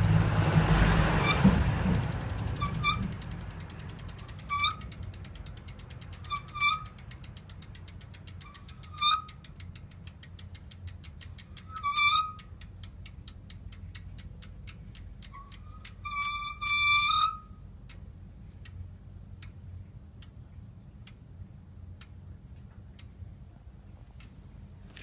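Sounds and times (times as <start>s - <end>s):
bicycle wheel ticking: 0.0s - 20.4s
high-pitched brake squeal: 1.2s - 1.6s, 2.5s - 3.1s, 4.4s - 4.8s, 6.2s - 6.9s, 8.4s - 9.3s, 11.7s - 12.4s, 15.4s - 17.5s.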